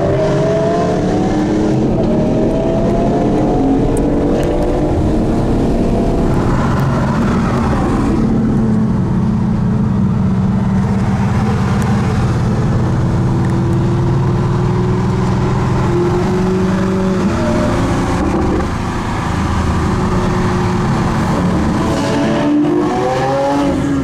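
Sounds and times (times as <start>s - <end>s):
road noise: 0.0s - 24.0s
car engine running: 1.7s - 22.1s.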